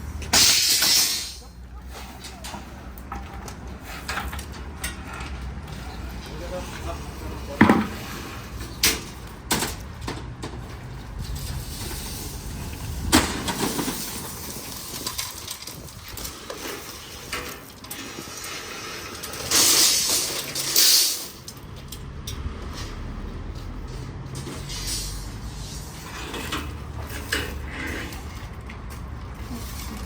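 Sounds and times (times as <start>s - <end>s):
hiss: 19.5s - 21.4s, 24.6s - 26.2s.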